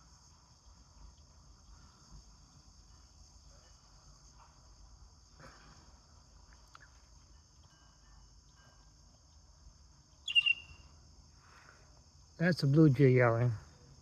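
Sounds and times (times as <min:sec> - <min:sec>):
crickets chirping: 0:00.0 - 0:14.0
blue jay call: 0:10.2 - 0:10.9.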